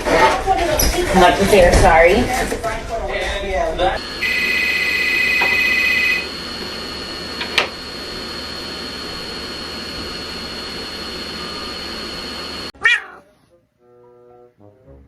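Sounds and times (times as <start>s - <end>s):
machine hum and hiss: 4.0s - 12.7s
thin high whine: 4.0s - 12.7s.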